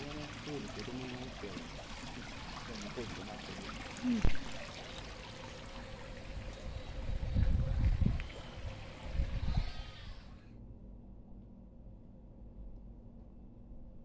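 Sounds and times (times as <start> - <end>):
rushing water: 0.0 - 9.5.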